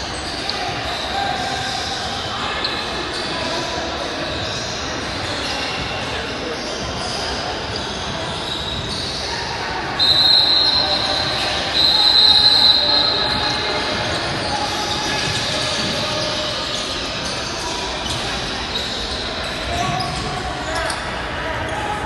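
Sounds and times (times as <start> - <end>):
murmur of voices: 0.0 - 22.0
referee's whistle blasts: 9.9 - 16.8
balls bouncing: 12.8 - 21.2.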